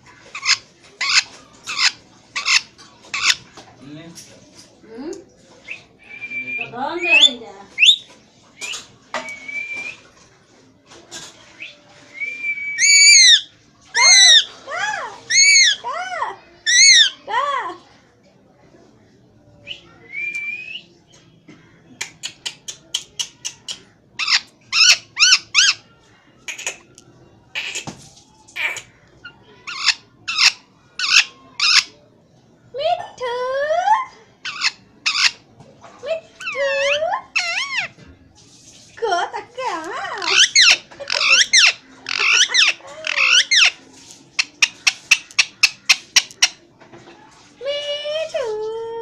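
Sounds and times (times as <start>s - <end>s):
parrot loud squawks: 0.3s - 3.4s, 12.8s - 14.5s, 15.3s - 15.8s, 16.6s - 17.2s, 24.2s - 25.8s, 27.5s - 27.9s, 28.5s - 29.0s, 29.6s - 31.9s, 34.4s - 35.4s, 36.4s - 38.0s, 40.2s - 43.8s
parrot sharp chirps: 12.8s - 13.4s, 40.2s - 43.8s.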